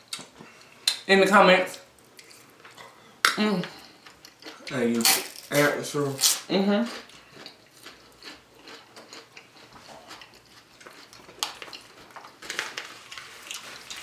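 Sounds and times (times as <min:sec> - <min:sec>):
people chewing food: 0:00.0 - 0:01.0, 0:01.7 - 0:05.2, 0:06.2 - 0:14.0.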